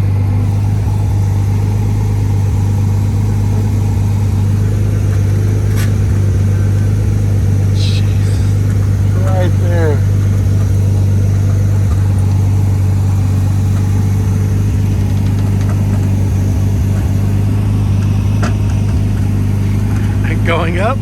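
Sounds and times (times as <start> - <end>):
motor humming: 0.0 - 21.0.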